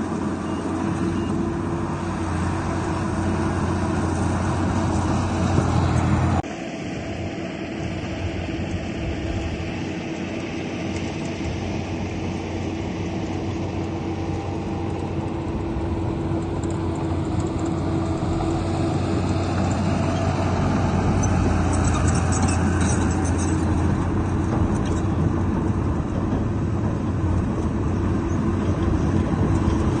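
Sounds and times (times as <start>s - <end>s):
heavy diesel engine running: 0.0s - 30.0s
high metallic squeaks: 21.1s - 23.8s.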